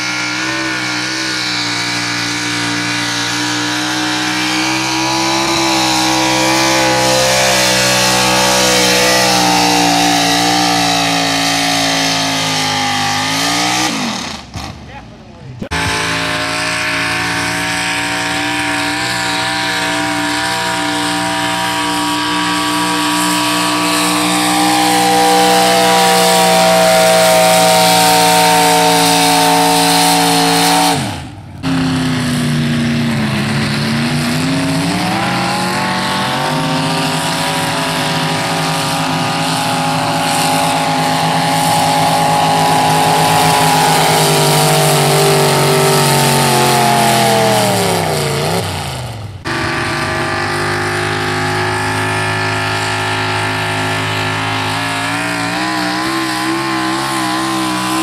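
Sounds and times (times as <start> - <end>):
truck engine at high revs: 0.0 - 58.0.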